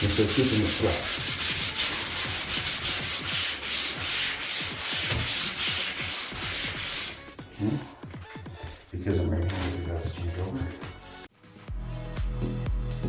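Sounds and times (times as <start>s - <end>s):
sandpaper rubbing on wood: 0.0s - 7.3s.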